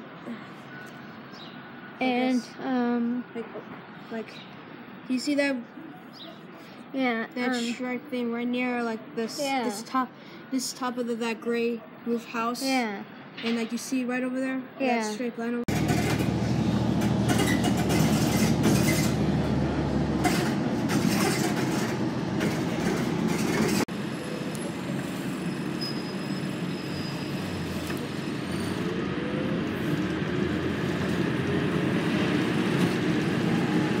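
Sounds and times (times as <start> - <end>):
train rolling on rails: 15.7 - 34.0
faint wheel squeal: 17.3 - 19.2, 25.3 - 28.9.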